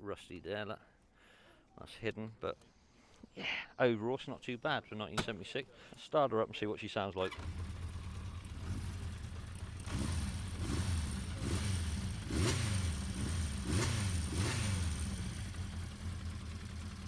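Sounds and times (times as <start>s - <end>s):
motorcycle engine idling: 7.3s - 17.0s.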